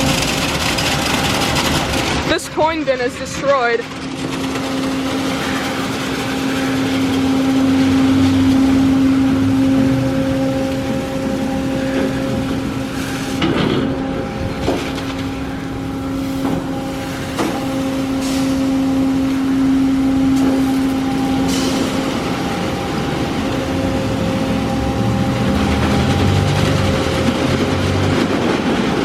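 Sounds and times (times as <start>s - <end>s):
motor whine: 4.3s - 27.9s.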